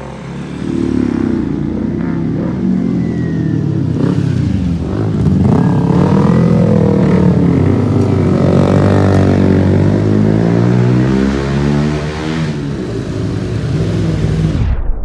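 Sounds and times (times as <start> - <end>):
motorcycle engine accelerating: 0.0 - 14.6.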